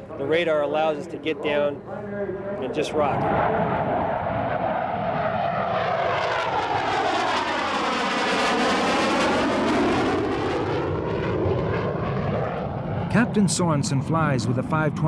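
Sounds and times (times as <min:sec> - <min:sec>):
jet flying past low: 0:02.1 - 0:15.0.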